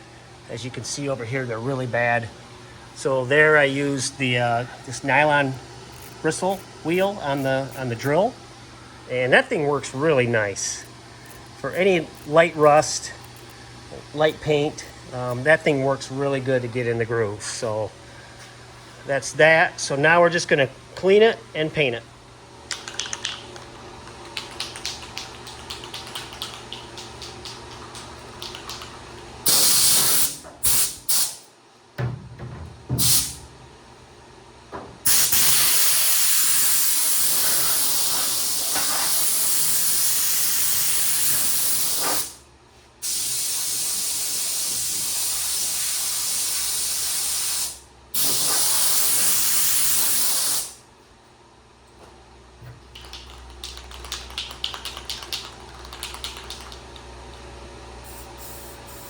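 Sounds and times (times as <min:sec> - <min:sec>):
aerosol spray can hissing: 0:05.9 - 0:08.1, 0:29.4 - 0:31.4, 0:33.0 - 0:33.4, 0:35.1 - 0:42.4, 0:43.0 - 0:50.8, 0:58.0 - 0:59.0.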